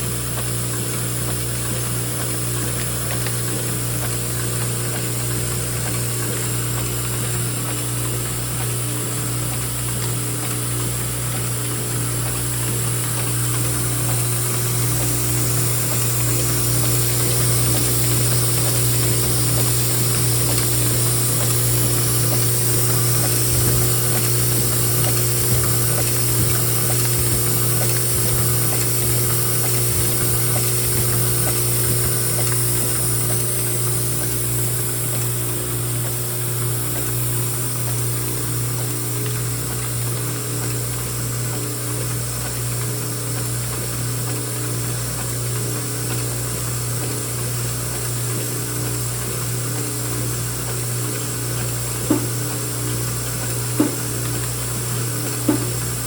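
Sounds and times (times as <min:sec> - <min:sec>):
pulsing machine hum: 0:08.0 - 0:38.9.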